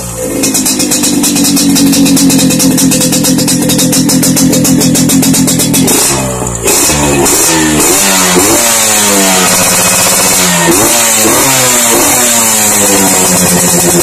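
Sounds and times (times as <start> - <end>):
two-stroke motorcycle engine revving: 0.0 - 14.0.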